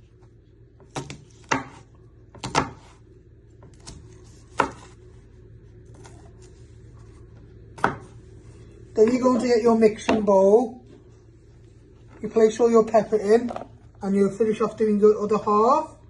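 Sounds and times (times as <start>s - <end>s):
knife chopping on a board: 0.8s - 3.0s, 3.6s - 5.0s, 7.8s - 8.2s.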